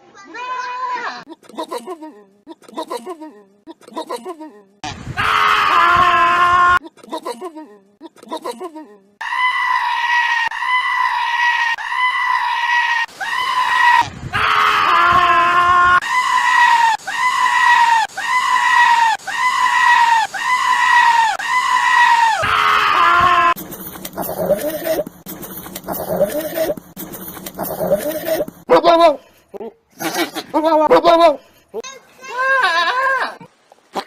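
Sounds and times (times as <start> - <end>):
goat screaming: 9.2 - 23.6, 32.3 - 33.4.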